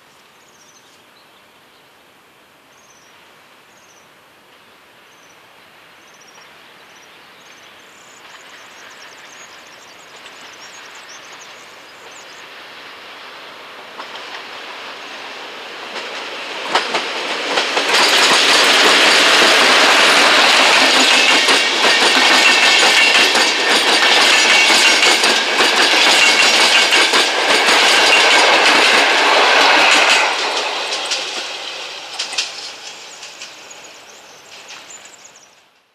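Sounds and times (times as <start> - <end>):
electric train passing: 5.8 - 35.9
wheels clacking over rail joints: 13.9 - 35.8.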